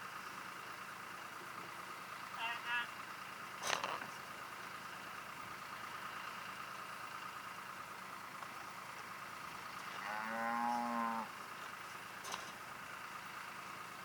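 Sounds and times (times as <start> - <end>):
cow mooing: 9.9 - 11.4.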